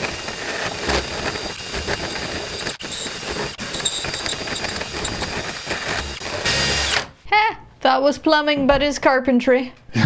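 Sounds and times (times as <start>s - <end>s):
power drill boring through wood: 0.0s - 7.2s.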